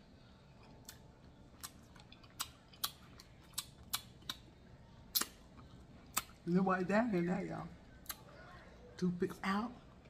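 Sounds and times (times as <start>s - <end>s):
person chewing fruit: 0.6s - 6.4s.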